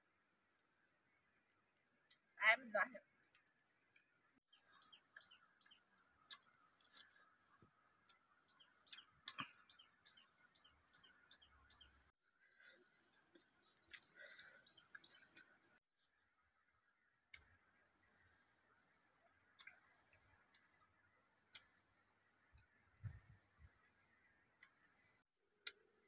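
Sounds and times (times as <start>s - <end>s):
birds chirping: 2.0s - 15.8s.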